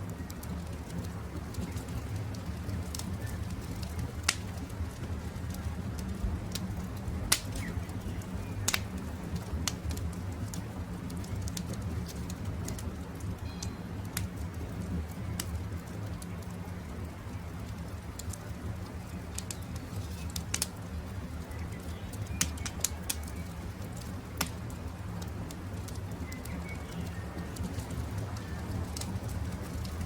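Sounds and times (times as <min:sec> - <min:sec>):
campfire crackling and popping: 0:00.0 - 0:30.0
faint birdsong: 0:06.8 - 0:09.6, 0:13.4 - 0:14.5, 0:15.1 - 0:24.1, 0:25.2 - 0:30.0.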